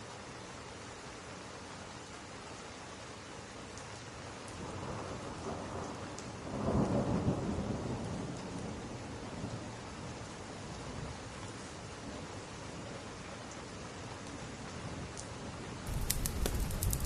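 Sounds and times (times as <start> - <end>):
steady rain: 0.0 - 17.0
faint sharp ticks: 15.9 - 17.0
thunder rumbling: 15.9 - 17.0.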